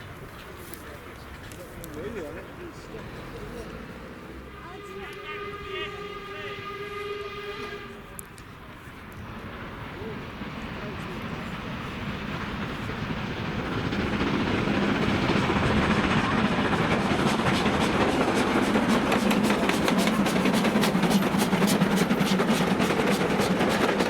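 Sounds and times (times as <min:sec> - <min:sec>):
train passing: 0:00.0 - 0:24.0
wheels clicking over rail joints: 0:12.3 - 0:24.0.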